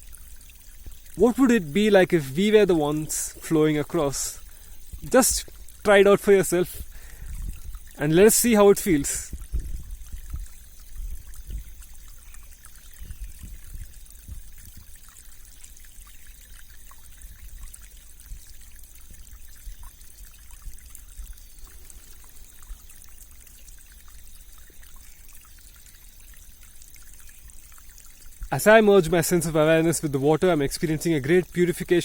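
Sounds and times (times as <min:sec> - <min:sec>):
stream flowing and bubbling: 0:00.0 - 0:32.0.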